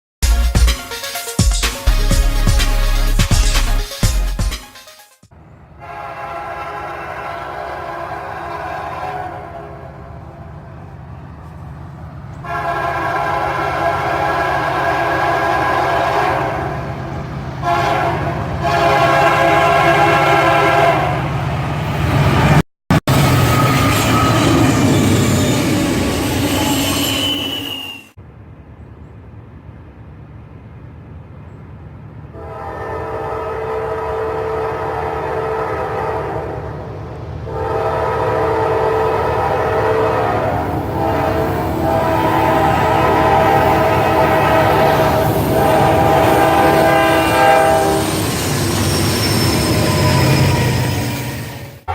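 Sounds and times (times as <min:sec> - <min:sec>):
passing train rumble: 0:05.3 - 0:51.9
locomotive horn blasts: 0:05.7 - 0:10.9, 0:12.4 - 0:21.5, 0:32.3 - 0:36.9, 0:37.5 - 0:48.4.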